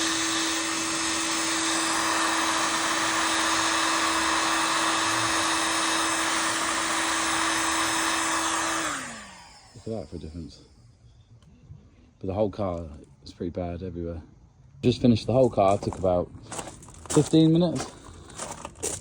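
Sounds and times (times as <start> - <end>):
heat gun fan blowing: 0.0 - 10.9.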